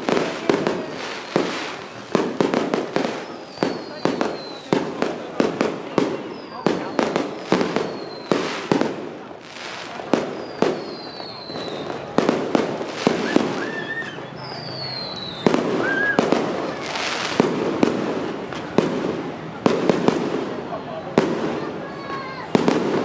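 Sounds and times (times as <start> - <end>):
fireworks banging: 0.0 - 23.0
fireworks crackling: 0.0 - 23.0
whistles falling in pitch: 10.4 - 12.0, 13.2 - 16.3.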